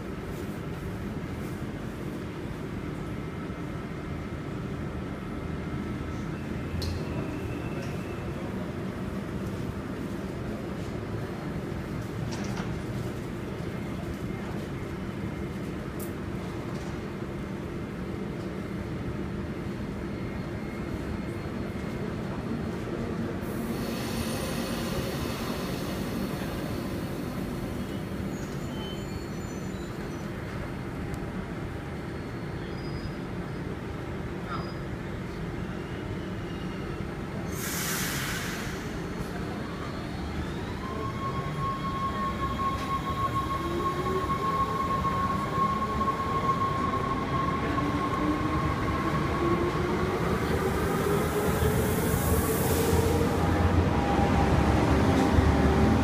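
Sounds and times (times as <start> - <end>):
rising train whine: 0.0 - 56.0
burst of hiss: 37.5 - 39.1
electric train hum: 38.9 - 56.0.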